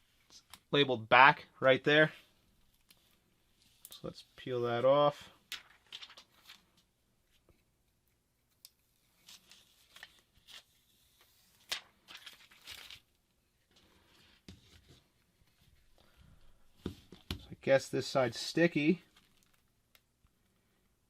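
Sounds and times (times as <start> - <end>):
plastic film peeling: 19.1 - 20.0.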